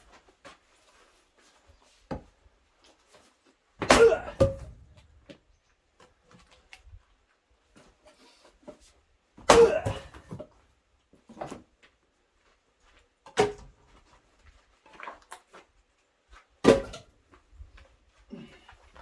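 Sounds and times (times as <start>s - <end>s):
axe splitting firewood: 3.8s - 5.0s, 9.4s - 10.5s, 16.6s - 17.1s.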